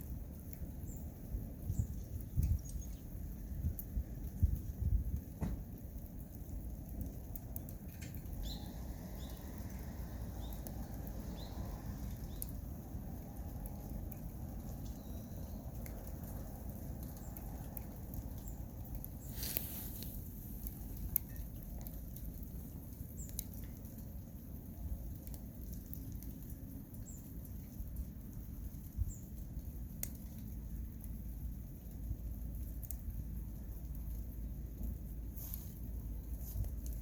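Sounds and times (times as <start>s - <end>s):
wood fire crackling and popping: 0.0s - 37.0s
fire hissing flare: 19.1s - 21.1s.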